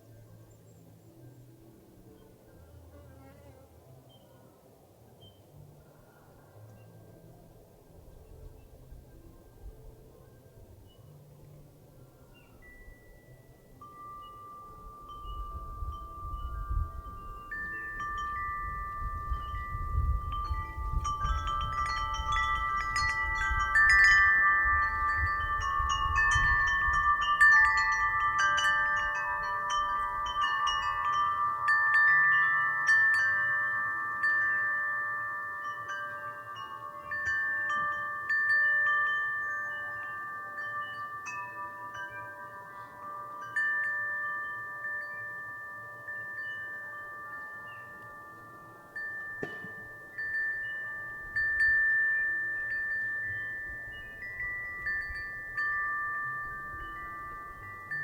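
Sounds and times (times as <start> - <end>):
metal wind chimes ringing: 10.6 - 58.0
low wind rumble: 13.4 - 35.1.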